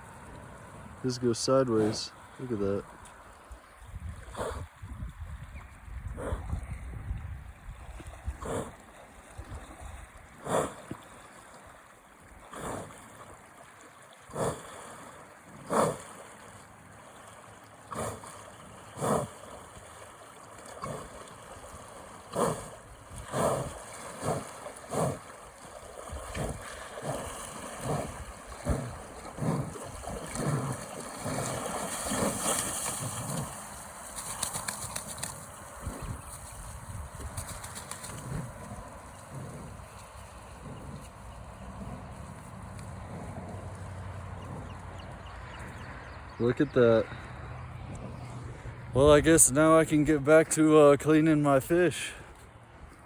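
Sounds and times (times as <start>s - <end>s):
river flowing: 8.5s - 36.6s.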